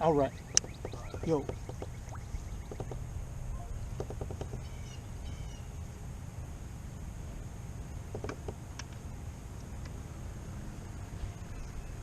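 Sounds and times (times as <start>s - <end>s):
birds chirping: 0.0s - 5.8s, 11.2s - 12.0s
low wind rumble: 0.0s - 12.0s.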